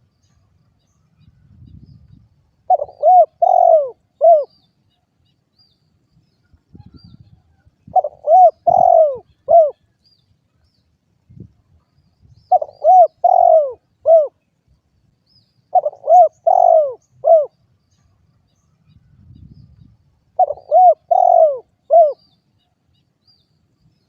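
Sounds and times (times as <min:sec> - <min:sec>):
dove cooing: 0:02.7 - 0:04.5, 0:07.9 - 0:09.9, 0:12.5 - 0:14.4, 0:15.7 - 0:17.6, 0:20.4 - 0:22.2.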